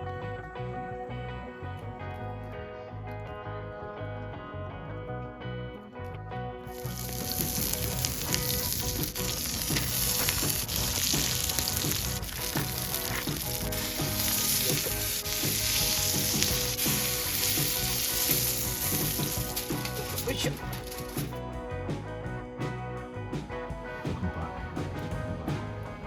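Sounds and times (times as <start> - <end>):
steak sizzling and crackling: 6.7 - 21.4.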